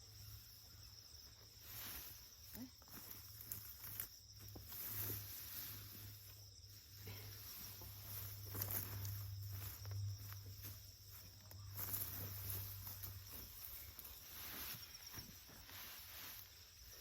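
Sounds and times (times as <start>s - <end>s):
rustling in vegetation: 0.0s - 17.0s
footsteps: 7.3s - 17.0s.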